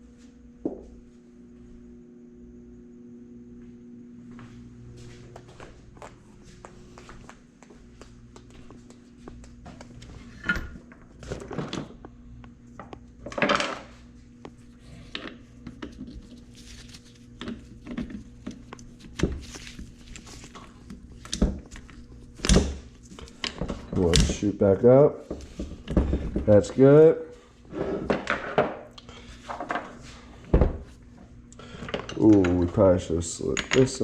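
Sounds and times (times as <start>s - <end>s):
metal clinks and knocks: 33.4s - 34.0s.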